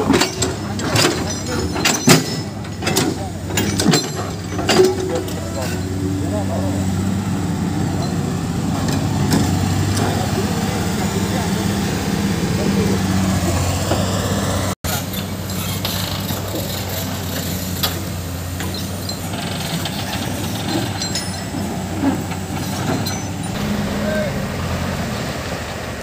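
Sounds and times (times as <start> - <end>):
knocks and clanks: 0.0 - 6.0, 14.9 - 23.8
diesel machinery engines running: 0.0 - 26.0.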